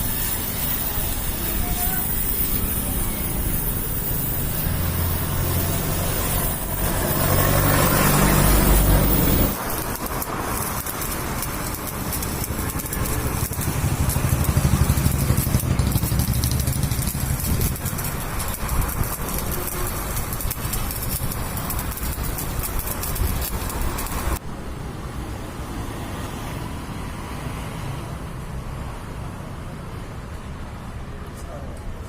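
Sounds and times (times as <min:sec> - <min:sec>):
engine humming: 0:00.0 - 0:24.4.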